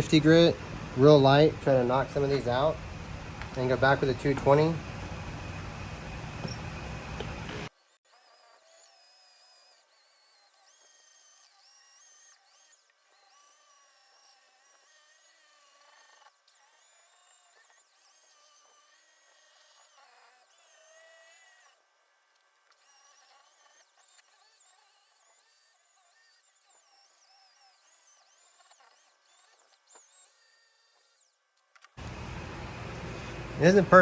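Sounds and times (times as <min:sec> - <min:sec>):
drill sanding metal pipe: 0:00.0 - 0:07.7, 0:32.0 - 0:34.0.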